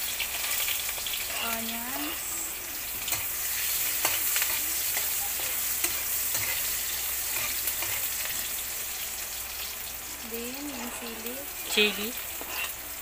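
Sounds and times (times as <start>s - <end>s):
garlic and onions sizzling: 0.0s - 13.0s
spatula scraping and tapping pan: 3.0s - 8.4s, 11.9s - 12.8s.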